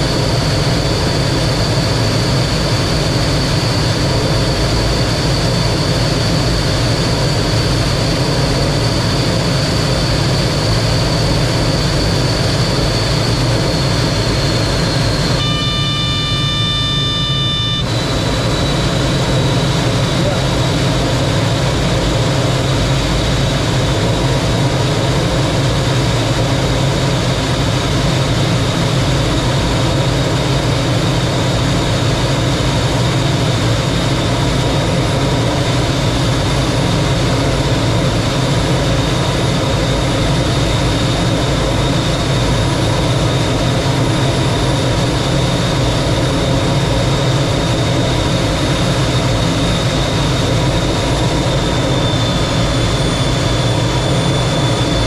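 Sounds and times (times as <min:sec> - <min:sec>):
high whine: 0:00.0 - 0:55.0
jet engine and airflow rumble: 0:00.0 - 0:55.0.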